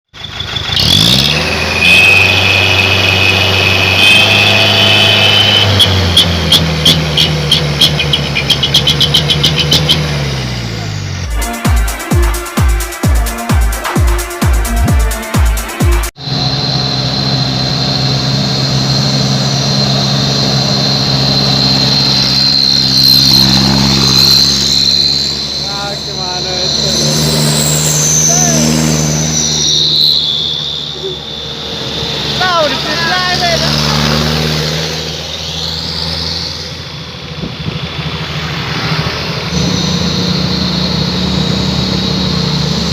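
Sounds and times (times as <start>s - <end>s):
truck engine revving: 0.1s - 42.9s
electronic music: 11.2s - 17.4s, 20.8s - 31.4s, 32.4s - 34.2s
steady high whine: 16.1s - 35.8s.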